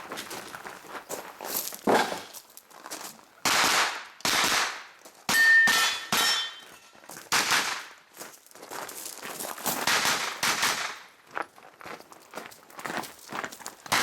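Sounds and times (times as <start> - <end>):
gunshots: 3.4 - 6.4, 7.3 - 7.9, 9.8 - 11.1
steel target ringing: 5.3 - 7.0.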